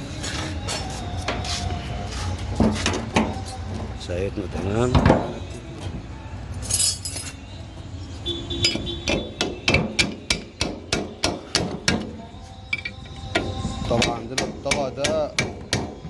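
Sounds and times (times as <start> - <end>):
hammer knocking on metal: 8.7 - 12.1, 13.3 - 16.0.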